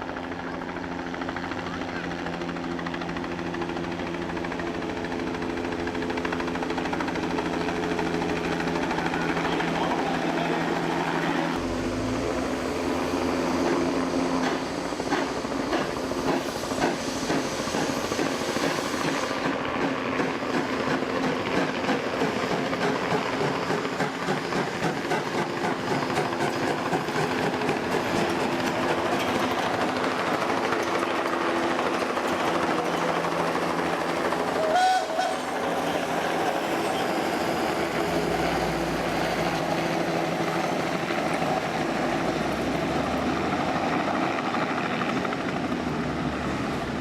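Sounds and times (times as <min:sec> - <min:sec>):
train engine hum: 0:00.0 - 0:47.0
train wheels clickety-clack: 0:13.6 - 0:38.8.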